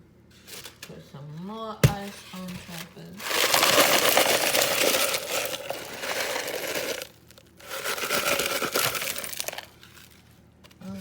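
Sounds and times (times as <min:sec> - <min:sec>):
ice cubes clattering: 0:02.0 - 0:10.3.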